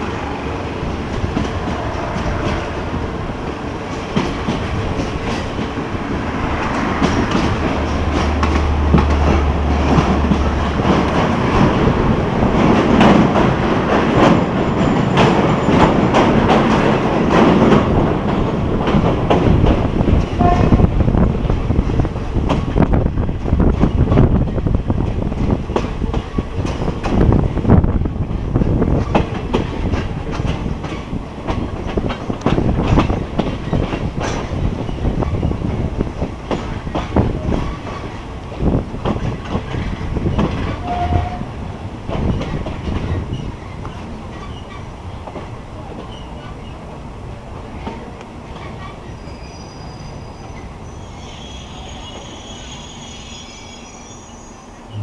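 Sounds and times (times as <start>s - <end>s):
train rumbling on rails: 0.0s - 55.0s
high squeal of wheels: 48.6s - 55.0s.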